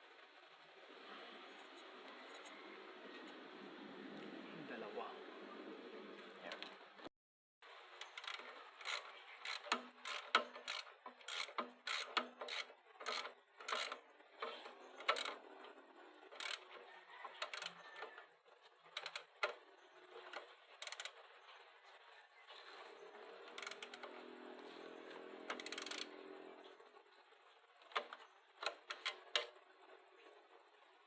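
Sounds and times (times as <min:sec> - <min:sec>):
clicks and knocks of tools and metal: 0:08.0 - 0:21.2, 0:23.4 - 0:27.0, 0:27.8 - 0:30.4.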